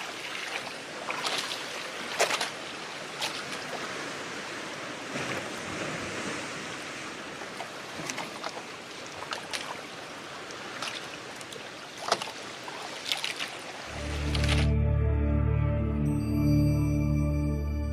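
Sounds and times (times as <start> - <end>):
sharp slaps of water: 0.0 - 3.8, 7.5 - 9.9, 10.5 - 13.7
sea water splashing against boat: 0.0 - 14.7
ambient music with deep tone: 13.9 - 17.9.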